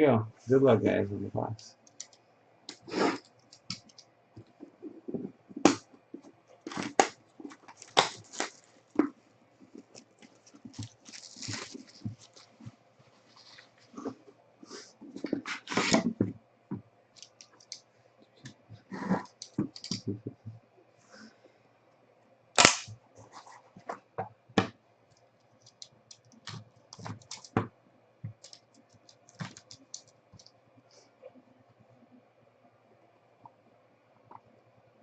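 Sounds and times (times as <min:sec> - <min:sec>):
trading cards rustling: 0:01.9 - 0:04.0, 0:06.6 - 0:14.2, 0:25.5 - 0:27.6, 0:28.3 - 0:30.5.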